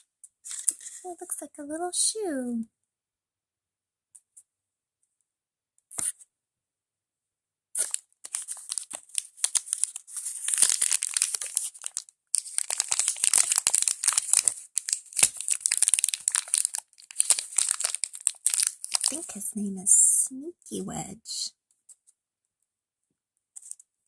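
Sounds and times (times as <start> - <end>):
plastic wrapper crinkling: 0.4 - 1.1, 7.8 - 19.6
plastic wrapper tearing: 0.5 - 1.0, 7.8 - 19.5.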